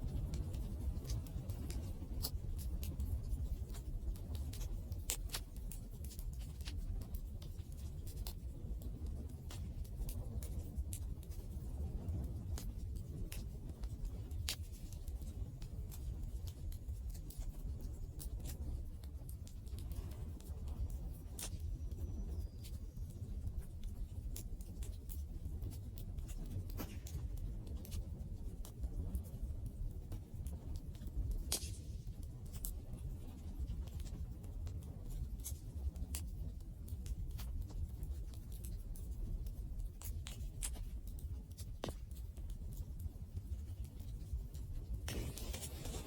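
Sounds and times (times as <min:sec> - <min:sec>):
low rumble of flames: 0:00.0 - 0:46.0
wood fire crackling: 0:00.1 - 0:46.0.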